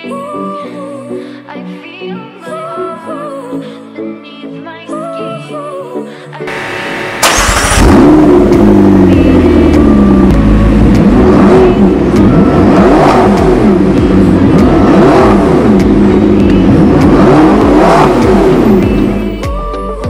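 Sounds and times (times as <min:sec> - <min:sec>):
car engine revving: 0:06.5 - 0:19.4.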